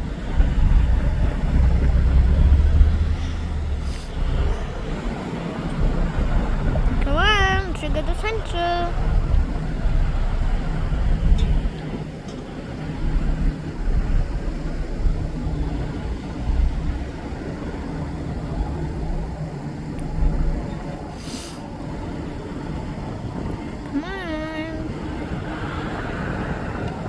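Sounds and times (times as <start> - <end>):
idling diesel locomotive hum: 0.0 - 27.0
wind rumbling on microphone: 0.0 - 27.0
short hiss: 21.2 - 21.6.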